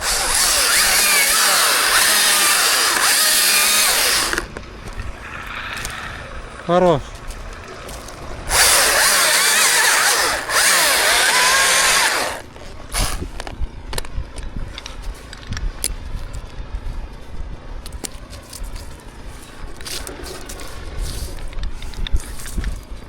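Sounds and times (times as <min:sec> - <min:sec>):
chainsaw cutting wood: 0:00.0 - 0:04.5, 0:08.5 - 0:13.3.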